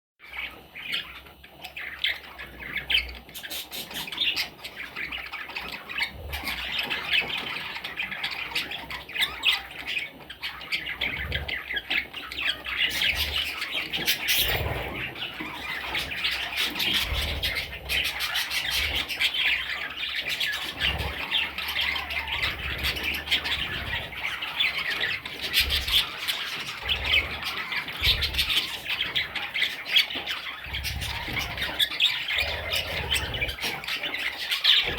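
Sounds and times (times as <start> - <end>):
budgerigar chicks squawking: 0.2 - 34.9.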